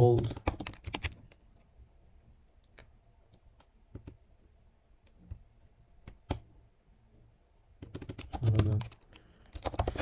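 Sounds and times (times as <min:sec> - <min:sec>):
keyboard typing clicks: 0:00.2 - 0:01.4.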